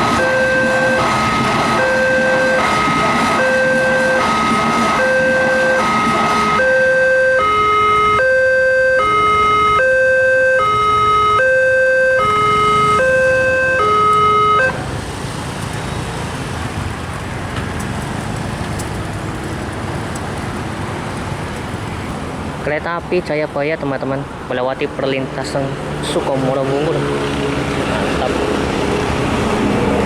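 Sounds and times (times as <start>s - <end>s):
level crossing two-tone alarm: 0.0s - 14.8s.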